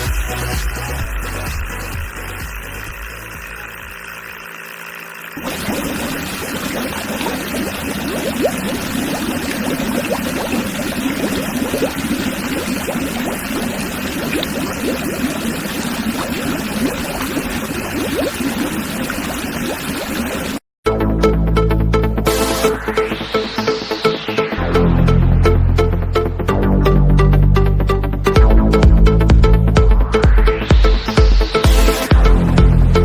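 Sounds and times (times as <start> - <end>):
electric water pump running: 0.0 - 20.6, 22.2 - 24.2, 31.4 - 33.0
water splashing and pouring: 0.0 - 20.6.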